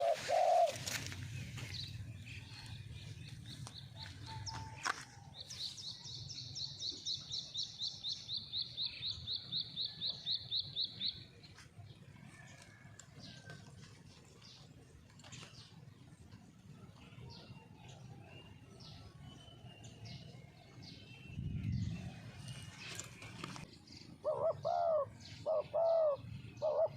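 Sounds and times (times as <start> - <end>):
low bird call: 0.0 - 1.2.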